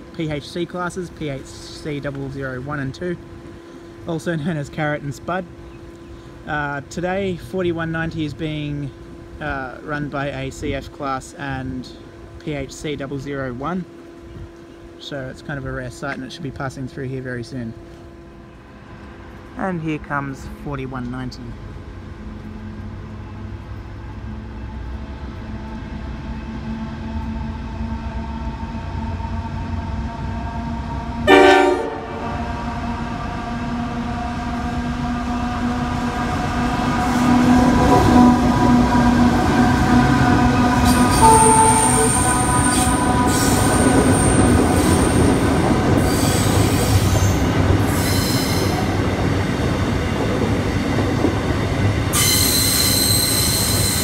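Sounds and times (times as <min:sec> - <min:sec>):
diesel locomotive rumble: 0:00.0 - 0:54.0
train horn blast: 0:31.2 - 0:33.6, 0:35.2 - 0:45.2
high wheel squeal: 0:37.0 - 0:45.4, 0:46.0 - 0:48.9, 0:52.1 - 0:54.0.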